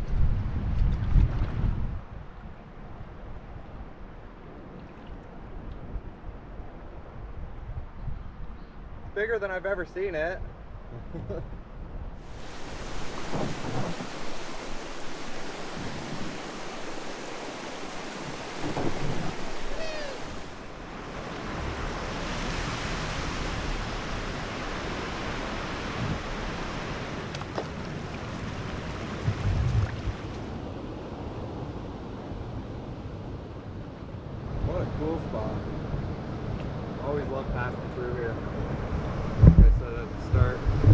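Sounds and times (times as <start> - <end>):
wind buffeting microphone: 0.0 - 2.4, 12.1 - 20.8, 27.2 - 31.5, 38.8 - 40.9
waterfall rushing: 12.2 - 20.8.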